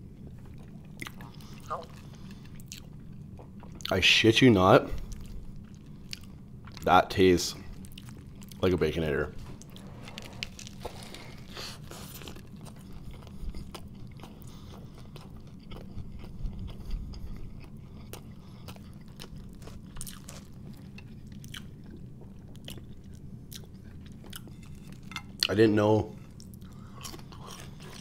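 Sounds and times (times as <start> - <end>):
low steady hum: 0.0 - 28.0
person chewing: 0.2 - 3.9, 5.0 - 6.9, 7.7 - 8.6, 9.6 - 25.5, 26.1 - 28.0
small crunches: 9.5 - 14.5, 17.6 - 21.7.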